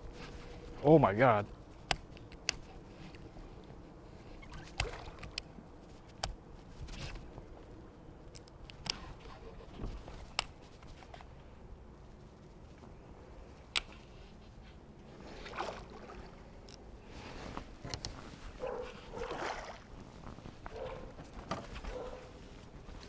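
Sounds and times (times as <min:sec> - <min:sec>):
water sloshing: 0:01.5 - 0:07.6, 0:13.5 - 0:23.0.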